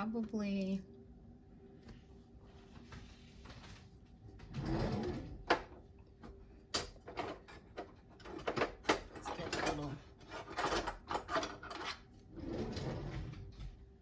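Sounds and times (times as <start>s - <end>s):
rustling shuffle: 1.8s - 4.4s
utensils clicking and knocking: 6.7s - 12.0s.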